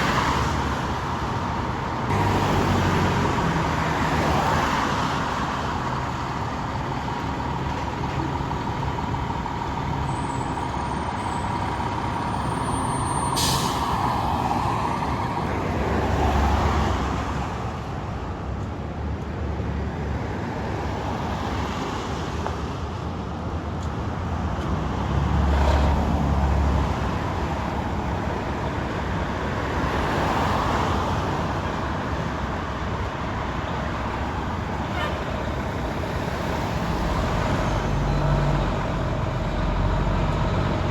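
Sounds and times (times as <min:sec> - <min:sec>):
diesel engines running: 0:00.0 - 0:40.9
air brake hiss: 0:13.0 - 0:14.2.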